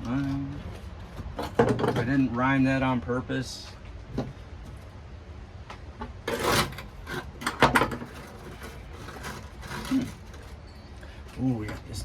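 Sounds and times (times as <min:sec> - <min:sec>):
material scraped off sheet metal: 0:06.3 - 0:10.6.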